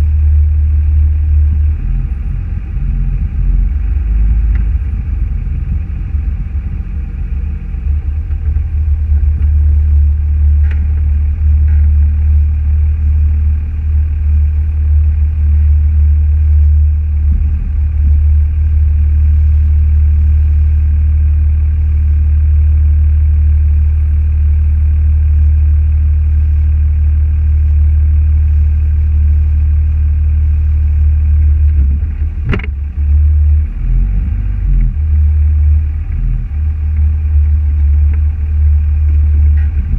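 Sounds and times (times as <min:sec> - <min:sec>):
car engine rumble: 0:00.0 - 0:39.9
road noise: 0:00.8 - 0:15.6, 0:31.6 - 0:39.9.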